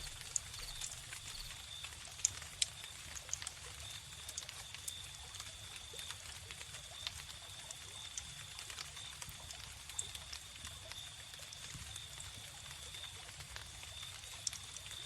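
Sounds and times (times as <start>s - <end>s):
sharp pops from fire: 0.0s - 5.6s
cricket trill: 0.0s - 6.1s
wood fire crackling: 0.0s - 15.0s.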